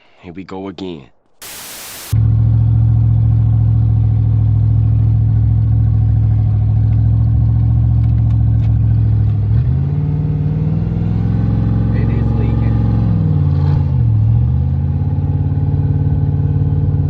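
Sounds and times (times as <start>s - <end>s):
car engine revving loudly: 9.5s - 17.0s.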